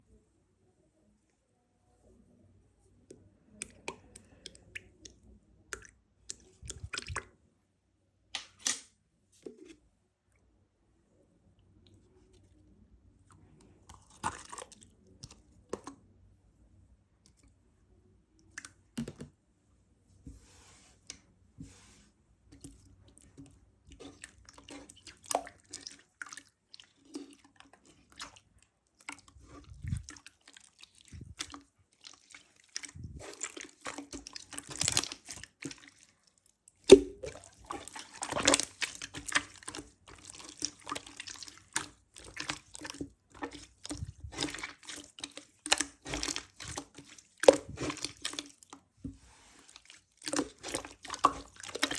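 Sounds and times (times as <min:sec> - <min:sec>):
sticky mass squishing and clicking: 0:22.6 - 0:48.9, 0:49.6 - 0:51.9.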